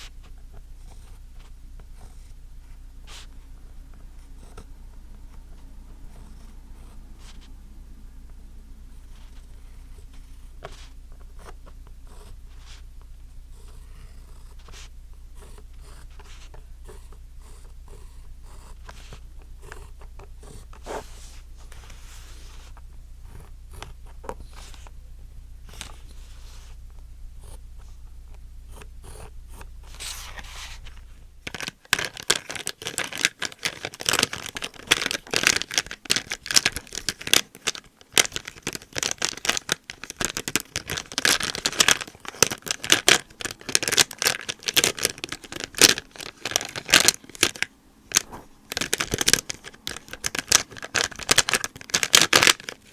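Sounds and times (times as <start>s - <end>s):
low steady hum: 0.0s - 52.9s
rapid clicking and crackling: 31.4s - 52.9s.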